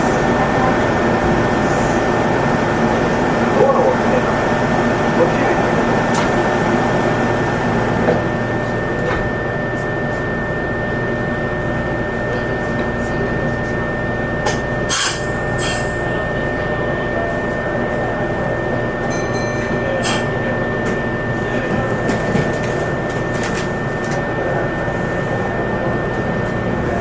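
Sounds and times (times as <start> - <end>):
train running noise: 0.0 - 27.0.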